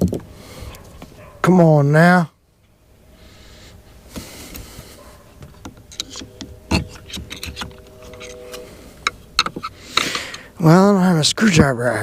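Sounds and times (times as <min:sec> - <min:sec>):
faint steady hum: 0:00.0 - 0:12.0
tools clicking and knocking: 0:05.4 - 0:08.3, 0:09.4 - 0:10.2.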